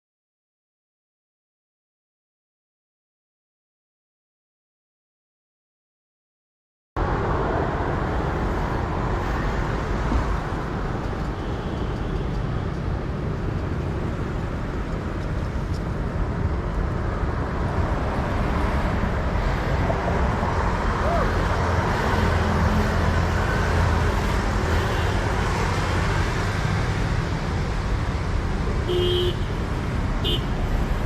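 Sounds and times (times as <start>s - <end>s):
motorbike road noise: 7.0s - 31.0s.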